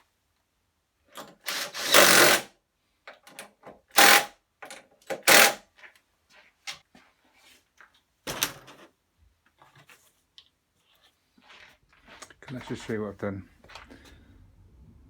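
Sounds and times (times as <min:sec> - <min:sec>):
power tool running: 0:01.5 - 0:02.5, 0:04.0 - 0:04.3, 0:05.2 - 0:05.6.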